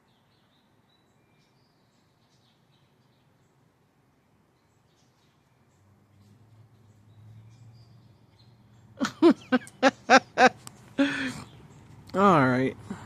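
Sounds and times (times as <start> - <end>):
person laughing: 9.0 - 11.4.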